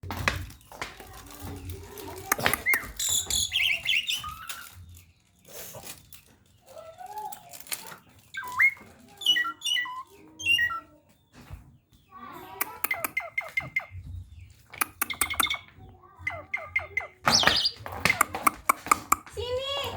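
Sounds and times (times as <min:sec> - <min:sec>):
starling calling: 0:02.2 - 0:05.0, 0:07.8 - 0:10.9, 0:14.6 - 0:19.3.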